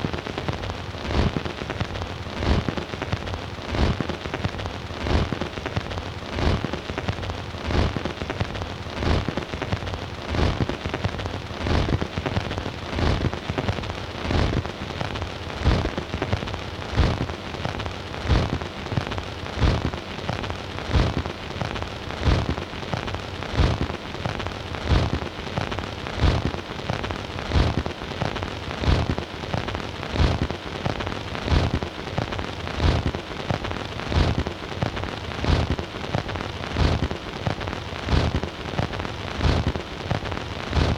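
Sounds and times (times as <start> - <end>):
record surface crackle and hiss: 0.0 - 40.9.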